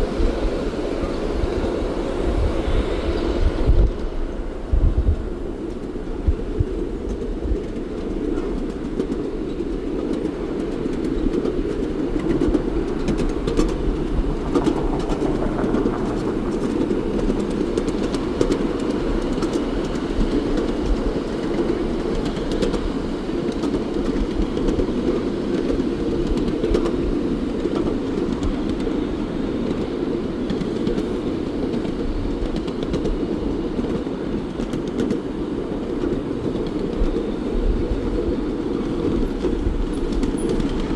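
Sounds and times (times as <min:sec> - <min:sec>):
train rumbling on rails: 0:00.0 - 0:40.9
sharp rail clicks: 0:10.0 - 0:22.8.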